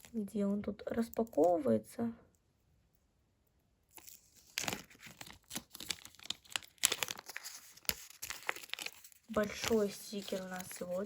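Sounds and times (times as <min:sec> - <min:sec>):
paper packet rustling: 0:04.0 - 0:11.0
paper ripping: 0:04.0 - 0:11.0.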